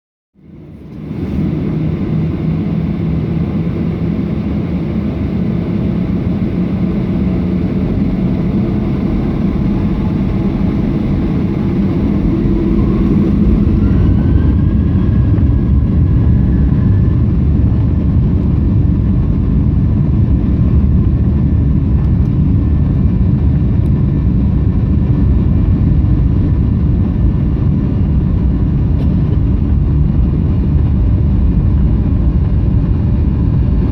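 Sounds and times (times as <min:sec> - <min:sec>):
jet engines at takeoff power: 0:00.4 - 0:33.9
faint rising whistle: 0:10.0 - 0:17.8.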